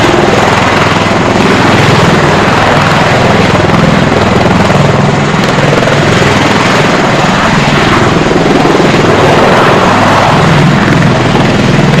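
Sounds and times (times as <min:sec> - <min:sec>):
tiltrotor aircraft engines running: 0:00.0 - 0:12.0.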